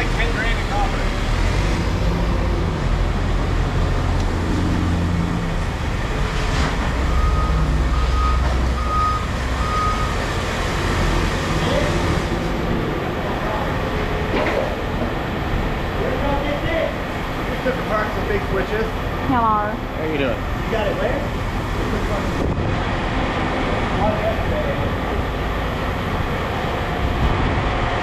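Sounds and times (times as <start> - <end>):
vehicle engine rumbling: 0.0 - 28.0
reversing alarm beeping: 7.0 - 10.4.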